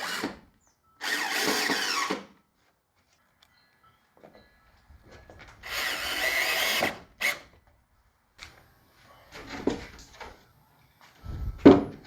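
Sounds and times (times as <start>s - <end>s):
power drill driving screw: 0.0s - 0.4s, 1.0s - 2.3s, 5.6s - 7.5s.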